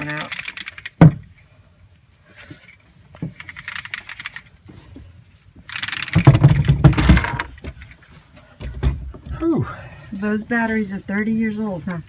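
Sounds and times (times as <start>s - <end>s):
faint clicks and rustling: 0.0s - 1.5s, 2.3s - 9.4s
battery clattering and scraping: 2.4s - 9.1s.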